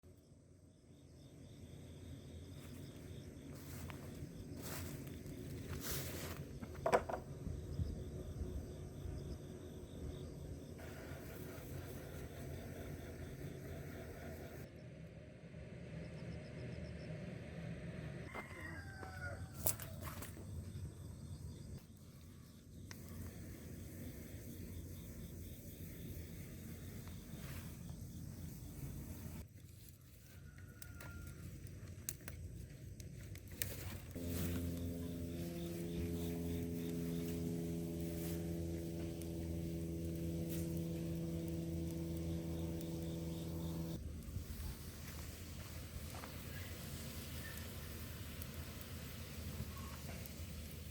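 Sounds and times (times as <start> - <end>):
low hum of held tones: 0.1 - 19.6, 20.3 - 50.9
rooster crowing: 18.2 - 20.2, 30.0 - 31.7
steady low rumble: 34.0 - 50.9.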